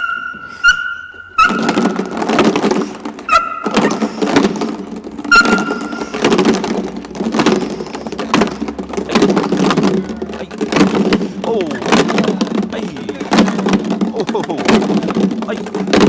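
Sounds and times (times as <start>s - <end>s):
dog squealing: 0.0s - 2.1s, 3.2s - 4.3s, 5.3s - 6.2s
dog scuffling and thudding: 0.0s - 16.0s.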